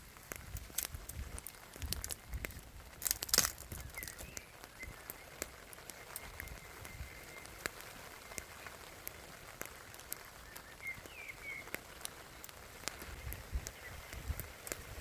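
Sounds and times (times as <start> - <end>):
campfire wood crackling: 0.0 - 15.0
bird chirping: 3.8 - 5.4, 6.0 - 7.6, 10.4 - 14.4.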